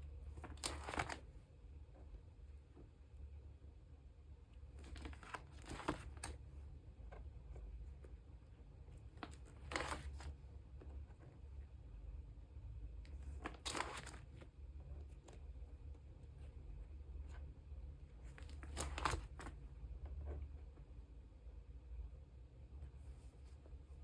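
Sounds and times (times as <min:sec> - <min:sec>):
plastic sleeves rustling: 0:00.2 - 0:01.4, 0:04.7 - 0:06.6, 0:09.1 - 0:10.9, 0:13.1 - 0:15.6, 0:18.2 - 0:19.7.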